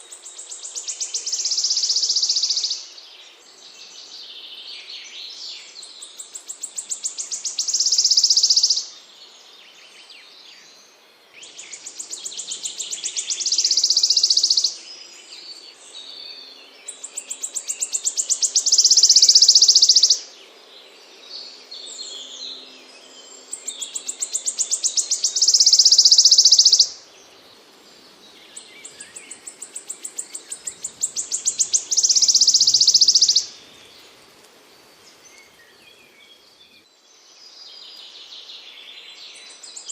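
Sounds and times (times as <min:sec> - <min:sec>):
songbird ticking and trilling: 0:00.0 - 0:02.9, 0:05.9 - 0:08.9, 0:11.4 - 0:14.9, 0:16.8 - 0:20.3, 0:23.3 - 0:34.2.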